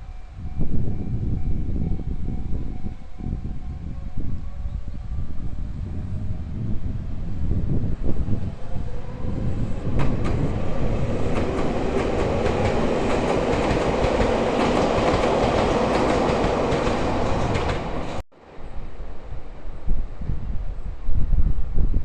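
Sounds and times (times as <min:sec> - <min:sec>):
electric train passing: 0:00.0 - 0:21.4
wind rumbling on microphone: 0:00.0 - 0:22.0
train wheels clicking over rail joints: 0:09.8 - 0:18.2.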